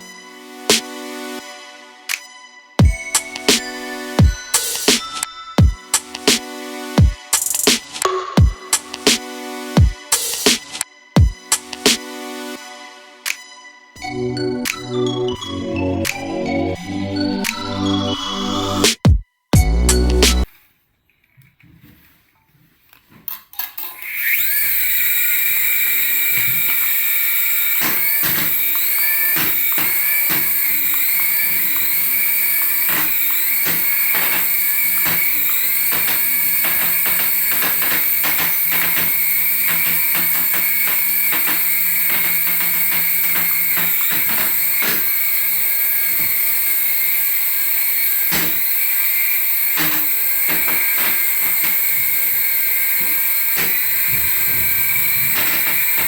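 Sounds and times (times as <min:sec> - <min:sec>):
toy electric motor whining: 0:23.7 - 0:56.0
clicks and taps: 0:49.8 - 0:51.8.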